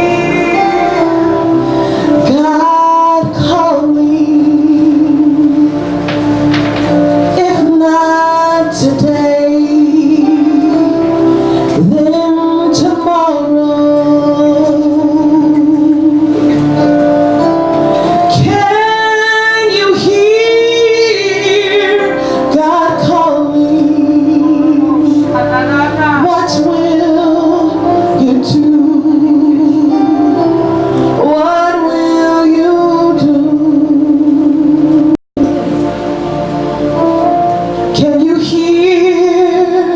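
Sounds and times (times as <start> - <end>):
woman singing: 0.0 - 1.6, 2.2 - 5.8, 7.3 - 11.1, 11.8 - 16.2, 18.3 - 30.5, 31.2 - 35.1, 37.9 - 39.9
instrumental accompaniment: 0.0 - 39.9.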